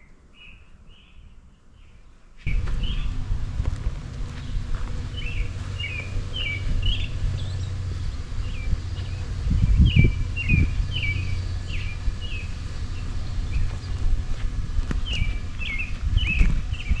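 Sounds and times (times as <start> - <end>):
low thumps: 2.5 - 17.0
small bird chirping: 2.5 - 17.0
steady low rumble: 2.5 - 17.0.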